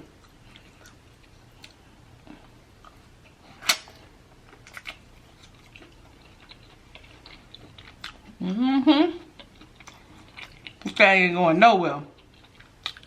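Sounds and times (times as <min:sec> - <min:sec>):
quiet chewing: 0:00.0 - 0:03.7, 0:04.3 - 0:08.4, 0:09.2 - 0:11.0, 0:12.1 - 0:13.0.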